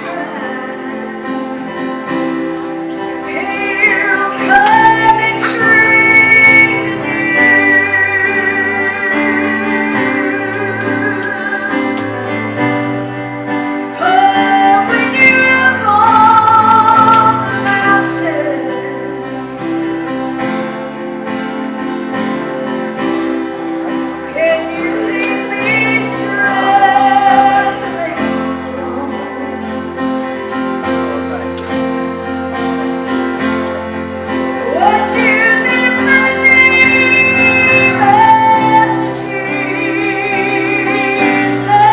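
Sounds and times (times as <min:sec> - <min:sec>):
woman singing gospel: 0:00.0 - 0:02.2, 0:03.2 - 0:12.3, 0:14.0 - 0:19.2, 0:24.3 - 0:29.8, 0:34.6 - 0:41.9
instrumental accompaniment: 0:00.0 - 0:41.9.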